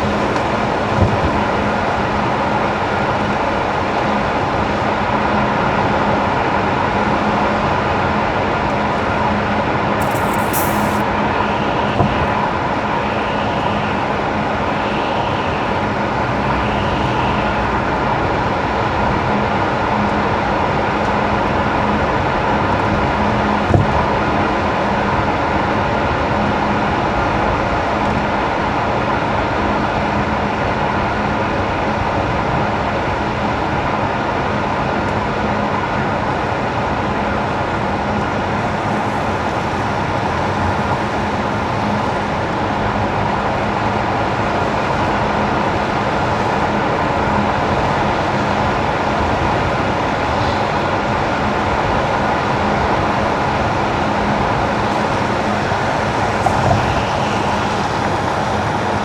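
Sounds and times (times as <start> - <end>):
sharp click: 10.0 - 11.0
tyres hissing on wet road: 10.0 - 18.4, 38.4 - 59.0
low engine hum: 52.8 - 59.0.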